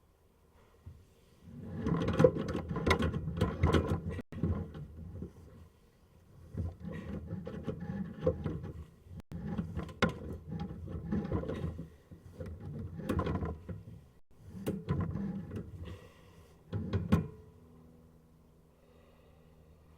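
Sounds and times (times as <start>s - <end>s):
cable rattling and scraping in drain: 1.4s - 5.6s, 6.4s - 16.0s, 16.7s - 17.3s.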